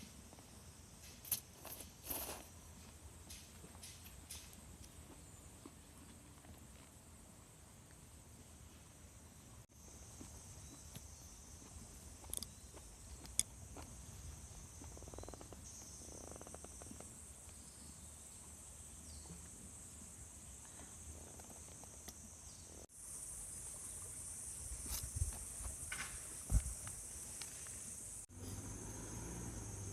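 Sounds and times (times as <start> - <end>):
insects chirring: 0.0 - 29.9.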